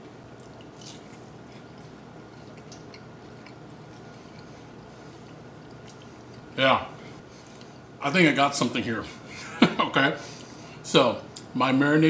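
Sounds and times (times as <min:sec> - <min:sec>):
person chewing food: 0:00.3 - 0:06.6, 0:07.2 - 0:07.9.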